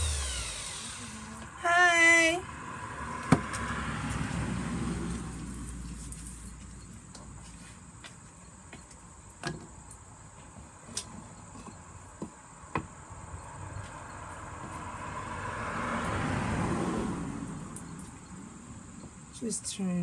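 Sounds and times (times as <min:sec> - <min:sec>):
car passing by: 0:02.4 - 0:06.2, 0:14.6 - 0:18.5.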